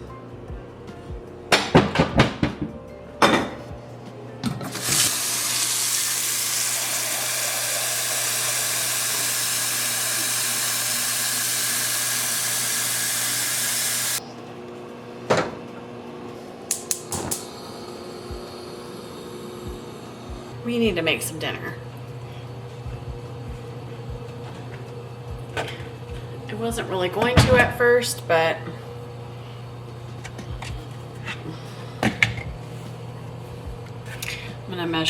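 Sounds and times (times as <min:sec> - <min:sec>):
dishes clinking: 0:01.6 - 0:03.7
kitchen tap running: 0:04.7 - 0:14.2.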